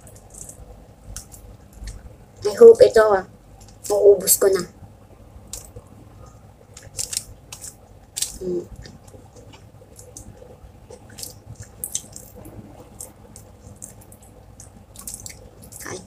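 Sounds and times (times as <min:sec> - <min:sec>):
person chewing with wet smacks: 0:05.5 - 0:16.0.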